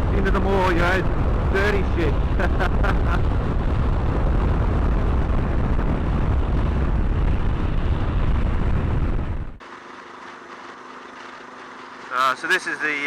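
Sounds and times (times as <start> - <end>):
wind buffeting microphone: 0.0 - 9.6
steady hum: 0.0 - 13.0.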